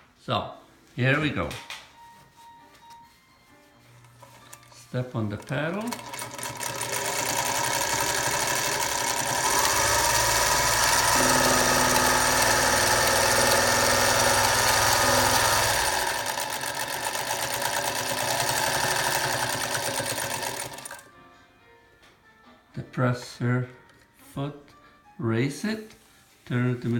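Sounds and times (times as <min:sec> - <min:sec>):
sewing machine running: 0:04.2 - 0:21.1.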